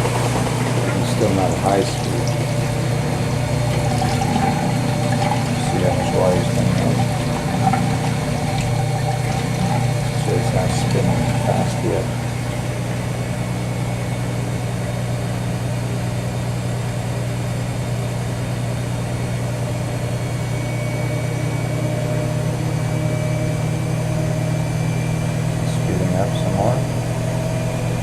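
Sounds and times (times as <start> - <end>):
faint high whine: 0.0 - 15.4
washing machine spinning hum: 0.0 - 28.0.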